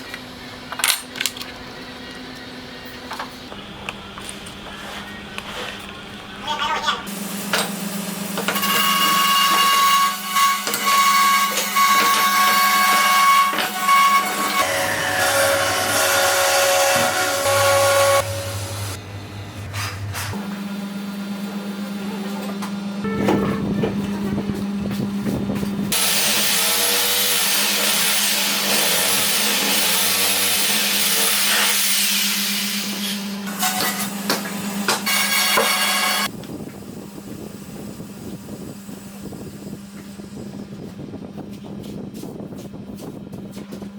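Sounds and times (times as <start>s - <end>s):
power tool running: 7.1s - 40.4s
electric motor whining: 8.5s - 19.2s.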